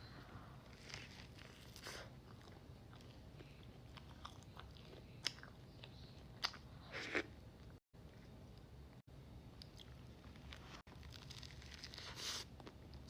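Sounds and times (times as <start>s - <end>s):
person chewing crunchy food: 0.6s - 7.3s.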